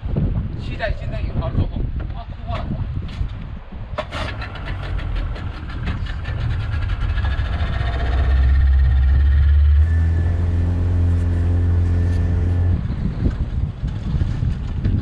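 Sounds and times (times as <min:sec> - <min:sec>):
boat engine running: 0:04.0 - 0:14.9.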